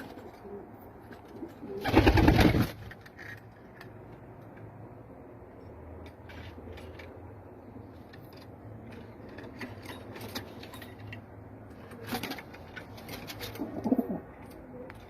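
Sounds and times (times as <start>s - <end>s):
pigeons cooing: 13.2s - 15.0s.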